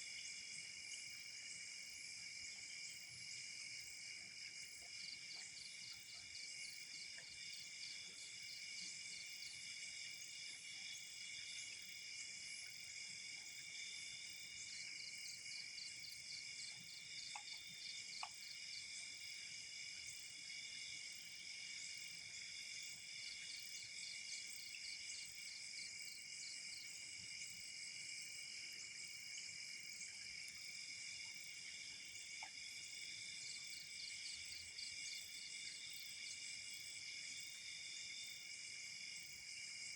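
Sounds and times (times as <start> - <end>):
crickets trilling: 0.1 - 39.9
faint ticks: 16.7 - 18.6, 32.3 - 32.7.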